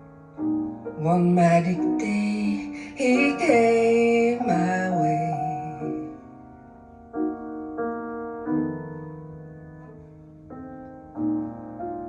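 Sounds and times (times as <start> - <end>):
piano chords: 0.0 - 12.0
person singing a ballad: 1.0 - 6.2.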